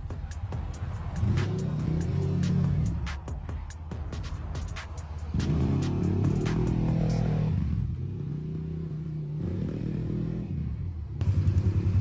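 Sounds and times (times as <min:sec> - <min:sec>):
quad engine running: 0:05.4 - 0:12.0.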